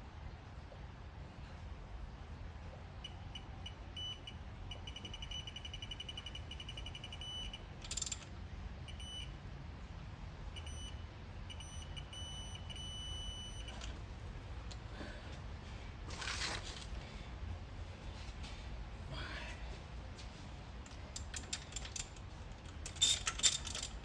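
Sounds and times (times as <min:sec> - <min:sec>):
steady beep tone: 0:03.0 - 0:07.7, 0:08.9 - 0:09.3, 0:10.6 - 0:13.9
rapid high beeps: 0:03.4 - 0:07.7, 0:08.9 - 0:09.3, 0:10.6 - 0:13.8
tools clattering: 0:16.1 - 0:16.9, 0:20.9 - 0:24.0.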